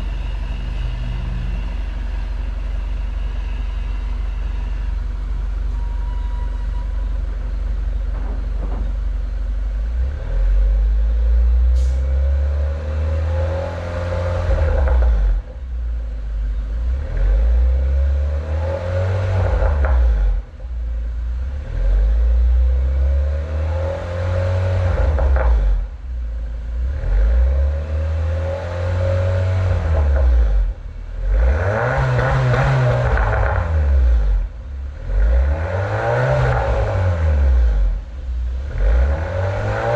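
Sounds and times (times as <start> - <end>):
car engine revving: 0.0 - 5.8, 7.0 - 39.9.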